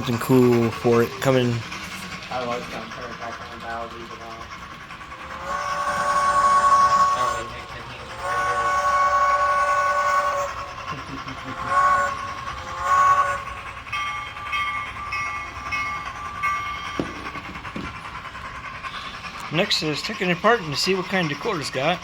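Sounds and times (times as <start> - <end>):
locomotive bell ringing tones: 0.0 - 22.0
model locomotive horn: 5.3 - 10.9, 11.5 - 13.7.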